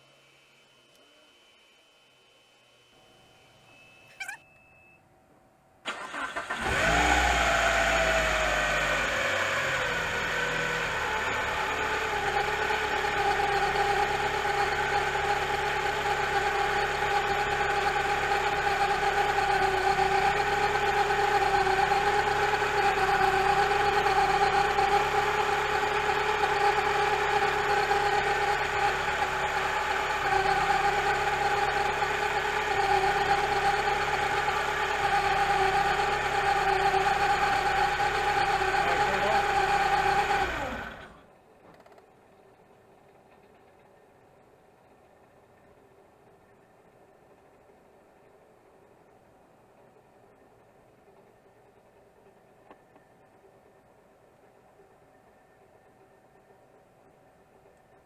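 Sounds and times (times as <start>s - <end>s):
timing belt whine: 0.0s - 5.1s
car engine idling: 5.8s - 41.3s.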